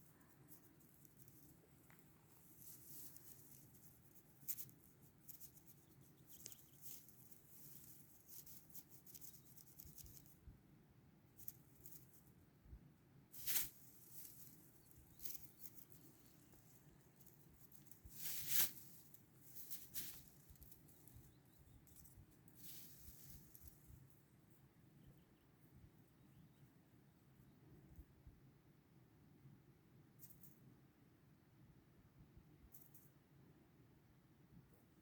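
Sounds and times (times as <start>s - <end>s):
scratchy crackles: 0.0s - 10.3s, 13.4s - 21.3s
faint rustling: 0.0s - 10.4s, 13.3s - 24.6s.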